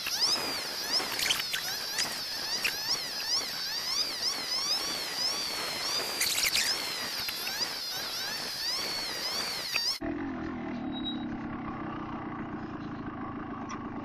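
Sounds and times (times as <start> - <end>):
background hiss: 0.0 - 10.0
small birds trilling: 0.0 - 10.0.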